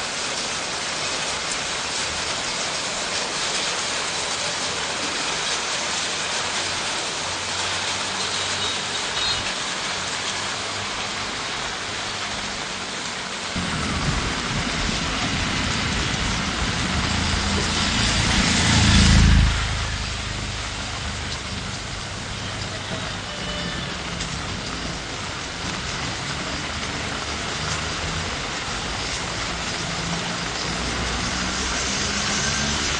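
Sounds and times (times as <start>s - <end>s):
heavy rain hissing: 0.0s - 32.9s
vehicle engine passing: 13.6s - 22.3s.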